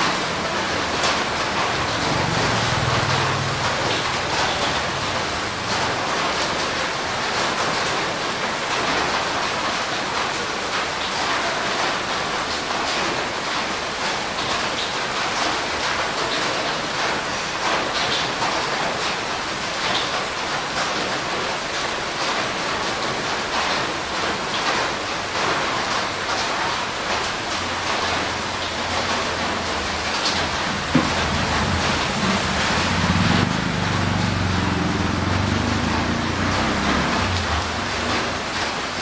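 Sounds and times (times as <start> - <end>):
heavy rain falling: 0.0 - 39.0.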